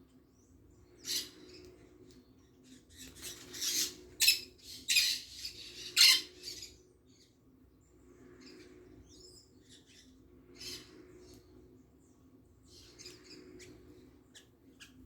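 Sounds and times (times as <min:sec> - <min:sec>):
birds harsh rasping calls: 0:00.9 - 0:01.7, 0:02.6 - 0:07.2, 0:08.3 - 0:11.4.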